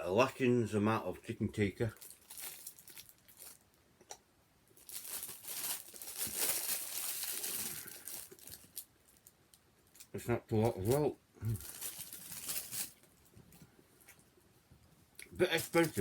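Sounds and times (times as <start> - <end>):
sandwich wrapper crinkling: 1.9 - 3.8, 4.8 - 13.3, 15.5 - 16.0.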